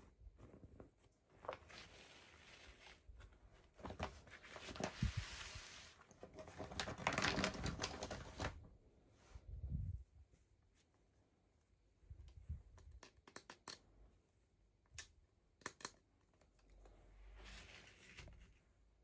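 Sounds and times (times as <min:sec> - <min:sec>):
packaging crinkling and tearing: 0:06.5 - 0:08.6
sharp clicks and taps: 0:12.3 - 0:13.9, 0:14.8 - 0:16.9.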